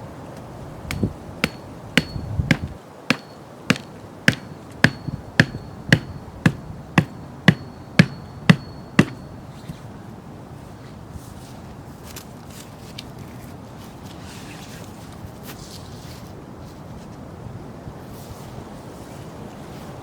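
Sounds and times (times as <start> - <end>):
hammer blows with metallic ring: 0.9 - 9.6.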